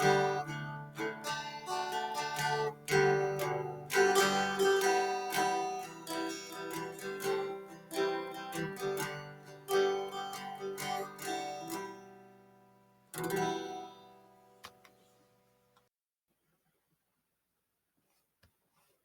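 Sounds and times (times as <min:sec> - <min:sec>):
strummed guitar chord: 0:00.0 - 0:12.6, 0:13.2 - 0:14.3
plucked acoustic guitar: 0:00.0 - 0:14.8.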